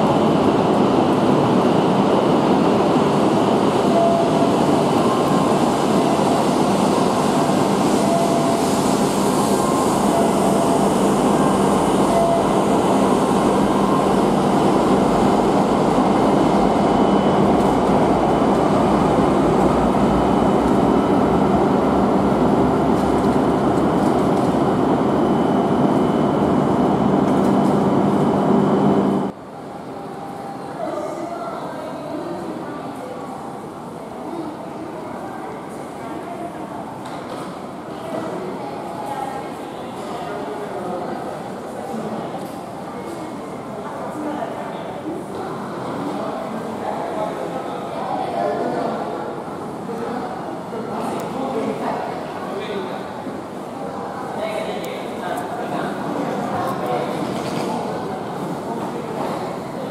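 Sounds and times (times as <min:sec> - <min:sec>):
train hum: 0:00.0 - 0:30.1.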